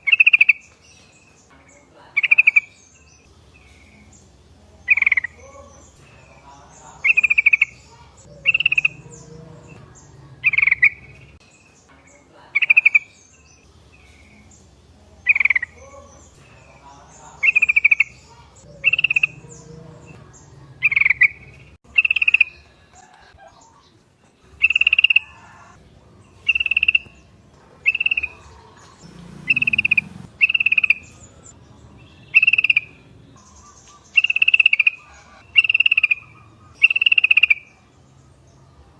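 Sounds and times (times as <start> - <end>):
bird calling bubbly phrases: 2.1 - 2.7, 4.8 - 11.4, 12.5 - 13.2, 15.2 - 22.6, 24.5 - 25.8, 26.4 - 27.2, 27.8 - 31.5, 32.1 - 37.8.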